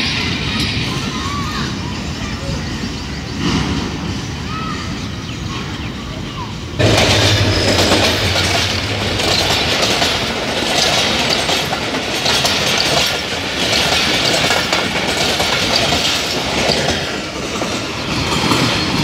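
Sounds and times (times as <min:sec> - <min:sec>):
locomotive engine drone: 0:05.8 - 0:16.6
train wheels clattering over rail joints: 0:06.8 - 0:19.0.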